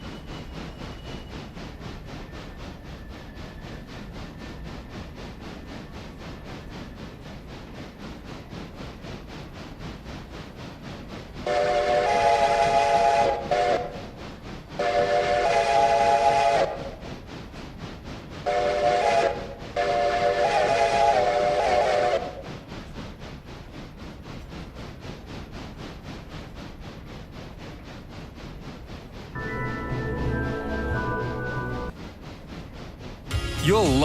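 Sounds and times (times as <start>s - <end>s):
train whistle blasts: 11.4s - 13.9s, 14.8s - 16.9s, 18.5s - 22.4s, 29.4s - 31.9s.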